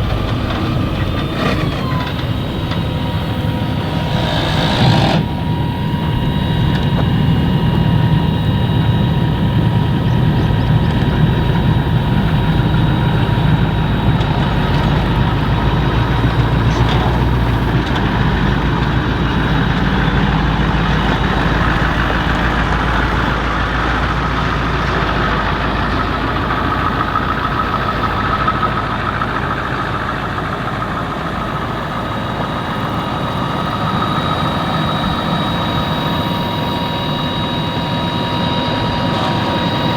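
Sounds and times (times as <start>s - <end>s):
forage harvester whine: 0.0s - 39.9s
tractor engine rumble: 0.0s - 39.9s.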